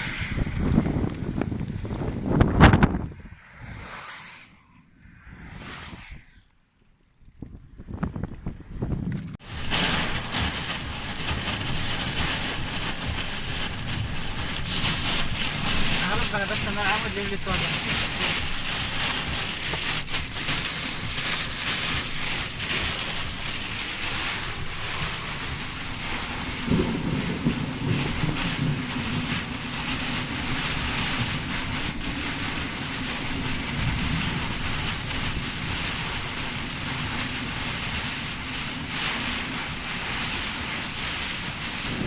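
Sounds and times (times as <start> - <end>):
heavy rain pouring: 0.0 - 3.1, 9.4 - 42.0
wind buffeting microphone: 0.0 - 3.9, 4.6 - 42.0.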